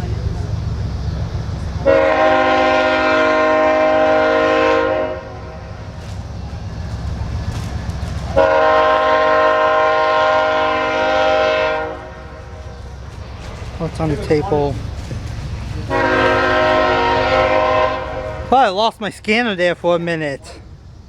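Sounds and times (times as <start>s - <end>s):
train rumbling: 0.0s - 21.0s
locomotive air horn: 1.8s - 6.2s, 7.6s - 14.6s, 15.7s - 18.6s.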